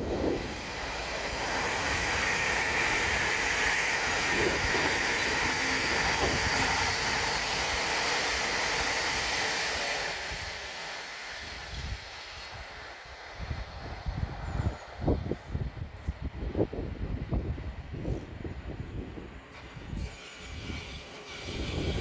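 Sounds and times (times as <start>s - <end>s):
electric train rushing past: 0.0s - 22.0s.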